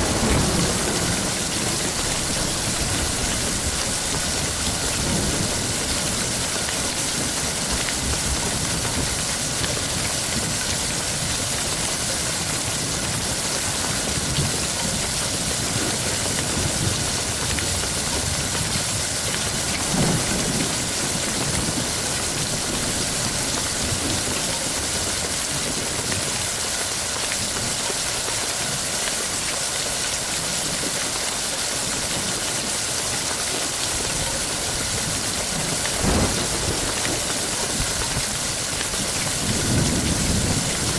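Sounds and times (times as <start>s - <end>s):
low thunder rumbling: 0.0s - 11.5s, 14.1s - 26.4s, 34.1s - 40.9s
heavy rain: 0.0s - 40.9s.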